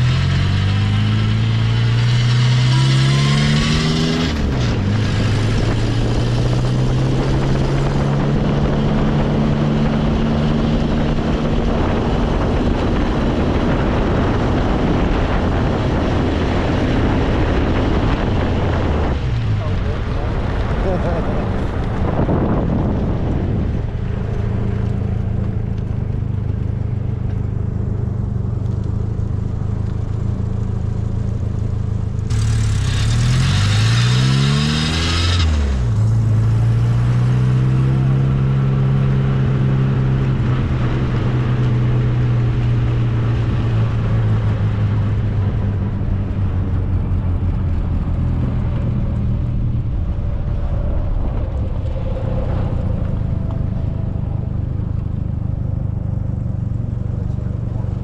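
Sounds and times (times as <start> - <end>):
car engine running: 0.0 - 58.0
road and wind noise: 0.0 - 58.0.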